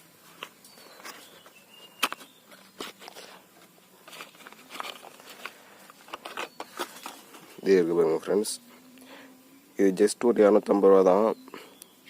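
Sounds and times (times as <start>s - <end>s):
small things being handled: 0.2s - 8.4s.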